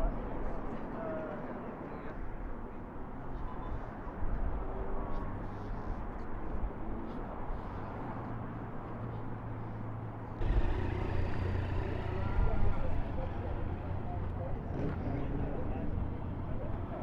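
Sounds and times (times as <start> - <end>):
outdoor background noise: 0.0 - 17.0
motorcycle engine idling: 10.4 - 15.0.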